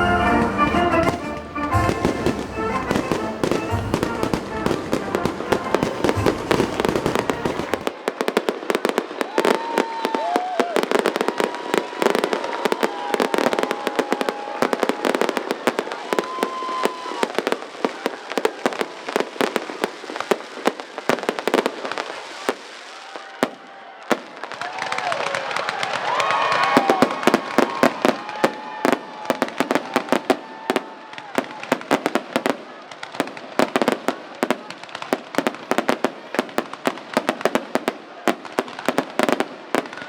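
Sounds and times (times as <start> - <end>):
firework whistles: 0.0 - 7.9
fireworks pops and bangs: 0.0 - 40.0.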